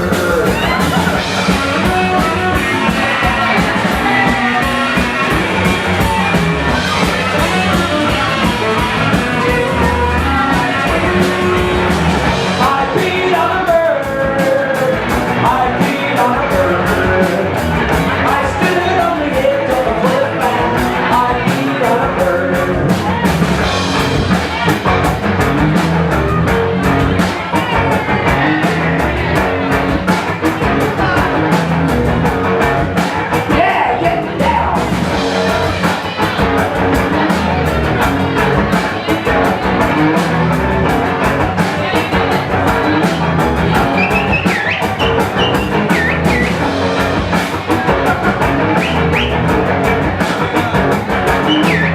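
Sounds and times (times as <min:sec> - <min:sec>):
person singing: 0:00.0 - 0:06.4, 0:12.5 - 0:23.2
rock band playing: 0:00.0 - 0:51.9.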